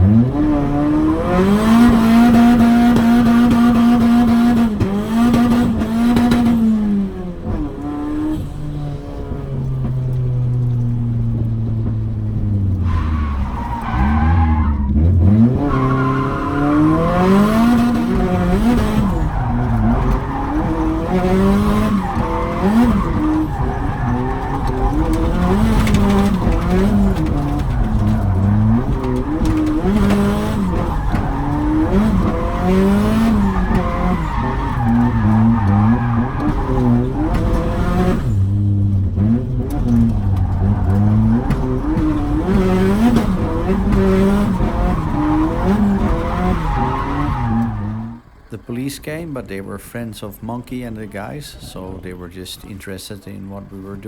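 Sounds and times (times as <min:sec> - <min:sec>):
car engine revving: 0:00.0 - 0:54.0
tyres squealing while sliding: 0:12.8 - 0:38.4, 0:39.2 - 0:48.6.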